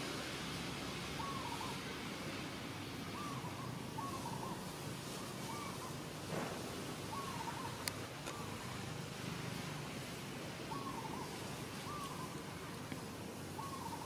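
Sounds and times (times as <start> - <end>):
steady background hiss: 0.0 - 14.0
bird hooting call: 1.2 - 1.9, 3.1 - 6.0, 7.0 - 8.6, 10.7 - 12.5, 13.5 - 14.0.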